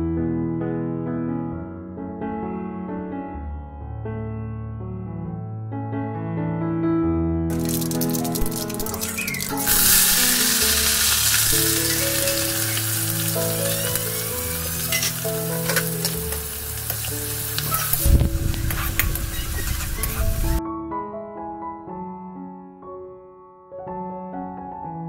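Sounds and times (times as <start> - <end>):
spatula scraping and clinking pan: 7.5 - 18.0
hot oil sizzling: 7.5 - 20.6
seeds popping: 7.5 - 20.6.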